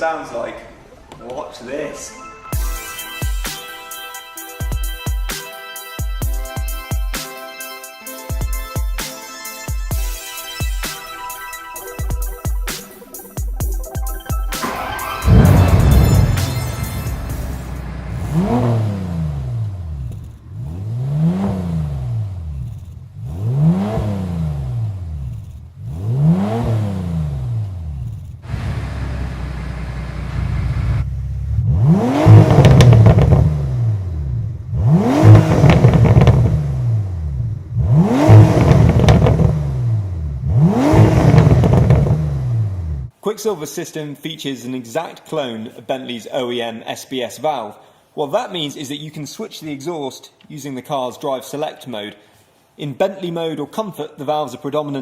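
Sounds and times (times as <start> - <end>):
car engine revving: 14.6 - 43.1.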